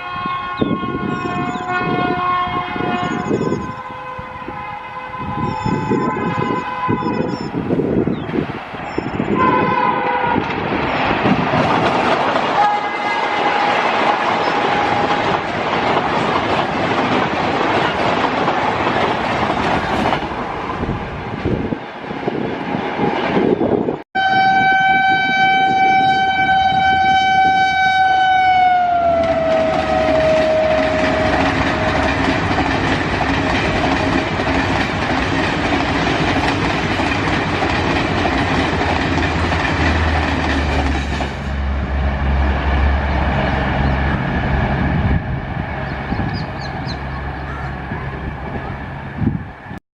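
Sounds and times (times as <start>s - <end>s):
train horn blasts: 0.0s - 7.6s, 9.2s - 10.6s, 12.6s - 15.3s, 24.2s - 32.2s
train clattering over rail joints: 9.1s - 21.6s, 29.1s - 41.7s.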